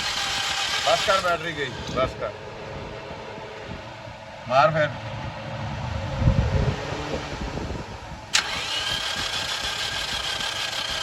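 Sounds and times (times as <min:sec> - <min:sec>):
starter motor cranking engine: 0:00.0 - 0:02.2, 0:08.3 - 0:11.0.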